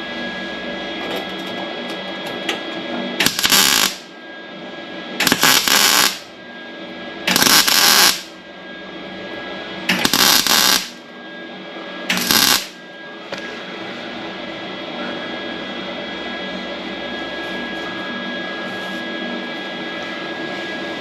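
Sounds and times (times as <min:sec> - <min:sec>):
welding arc crackling: 0:03.2 - 0:04.1, 0:05.2 - 0:06.2, 0:07.3 - 0:08.3, 0:09.9 - 0:11.0, 0:12.1 - 0:12.8.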